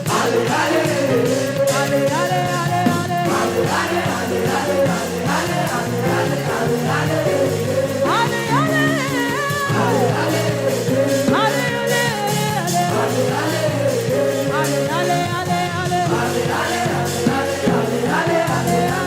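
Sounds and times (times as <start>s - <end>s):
drums and bass beat: 0.0s - 19.0s
gospel praise music: 0.0s - 19.0s
person singing: 0.0s - 19.0s.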